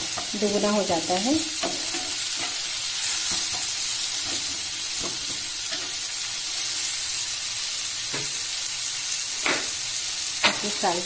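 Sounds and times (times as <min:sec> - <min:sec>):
food sizzling in hot oil: 0:00.0 - 0:11.0
spatula scraping a pan: 0:01.6 - 0:07.0.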